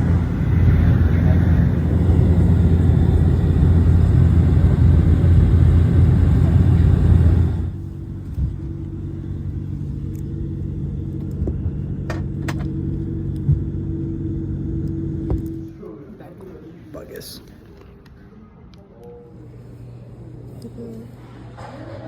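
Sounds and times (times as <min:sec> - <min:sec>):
car road and engine noise: 0:00.0 - 0:15.8.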